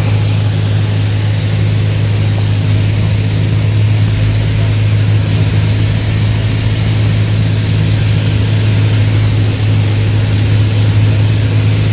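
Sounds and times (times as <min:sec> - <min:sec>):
light aircraft engine droning: 0:00.0 - 0:11.9.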